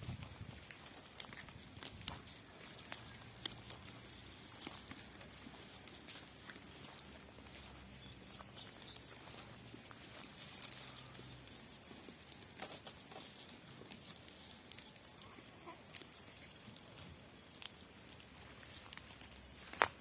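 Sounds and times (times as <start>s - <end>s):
soft clicks and rustles: 0.0s - 20.0s
high bird chirp: 7.6s - 9.4s.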